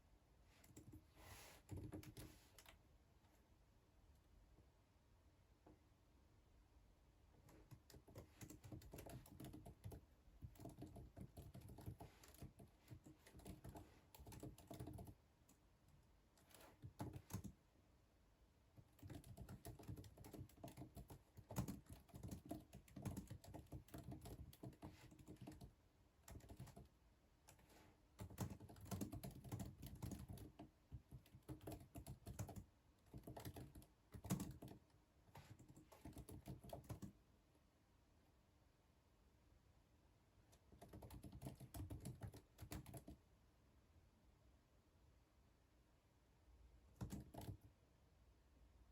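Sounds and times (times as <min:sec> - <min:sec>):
keyboard typing clicks: 0:28.2 - 0:34.8, 0:40.8 - 0:43.2, 0:47.0 - 0:47.7.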